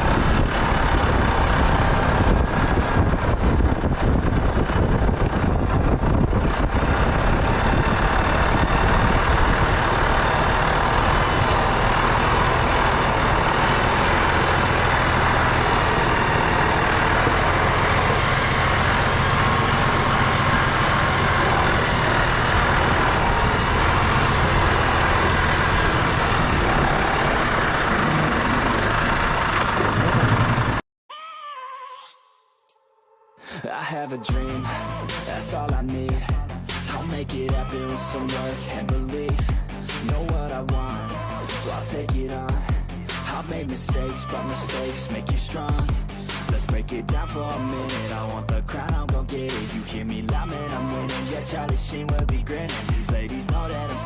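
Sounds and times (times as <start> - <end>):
broad even noise: 0.0 - 30.8
truck diesel engine running: 0.0 - 30.8, 34.3 - 54.0.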